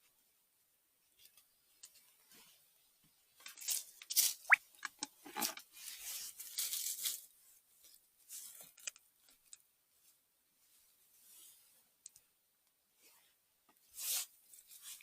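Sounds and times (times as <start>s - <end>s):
crunching of leaf litter and twigs: 5.7s - 7.3s.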